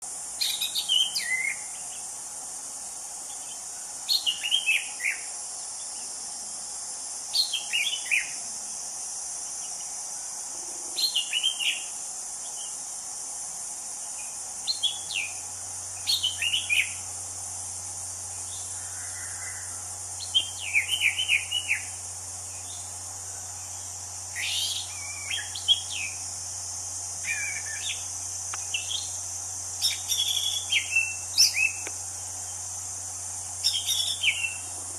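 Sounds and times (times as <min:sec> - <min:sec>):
high insect drone: 0:00.0 - 0:34.9
thrush singing whistled notes: 0:00.4 - 0:01.8, 0:24.3 - 0:26.2, 0:29.8 - 0:31.9, 0:33.6 - 0:34.7.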